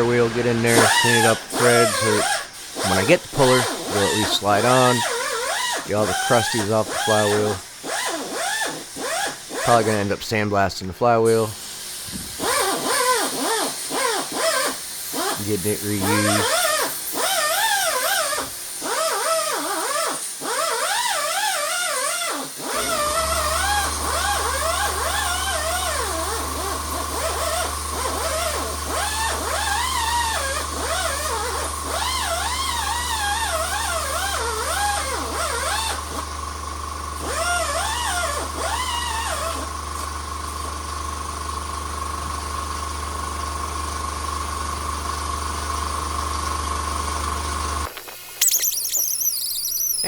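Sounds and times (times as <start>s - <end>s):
electric tool wire wheel humming: 0.0s - 10.0s, 11.7s - 50.0s
high wavering squeal: 48.4s - 50.0s.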